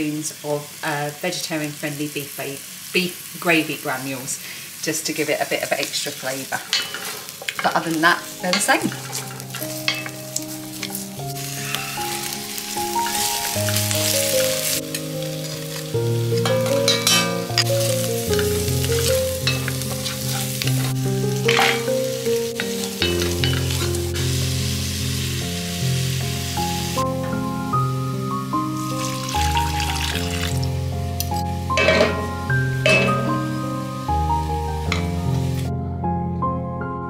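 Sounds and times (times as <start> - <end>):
onion and sausage sizzling: 0.0 - 35.8
background music: 7.6 - 37.0
wooden spoon scraping pot: 8.6 - 10.1, 19.6 - 20.9.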